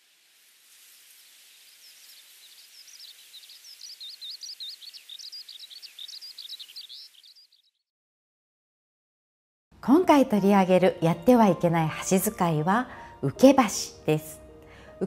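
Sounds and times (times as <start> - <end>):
steady outdoor hiss: 0.0 - 7.3
songbird warbling: 1.4 - 7.8.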